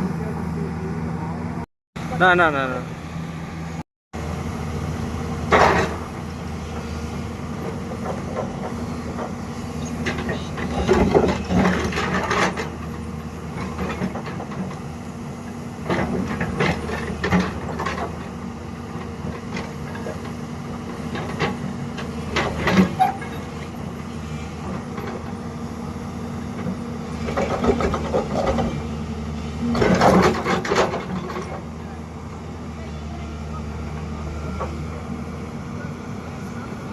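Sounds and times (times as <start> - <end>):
diesel engine running: 0.0 - 36.9
machine clanks and knocks: 5.5 - 6.1, 10.0 - 12.9, 15.8 - 18.2, 21.1 - 23.7, 26.6 - 28.8, 29.7 - 31.6.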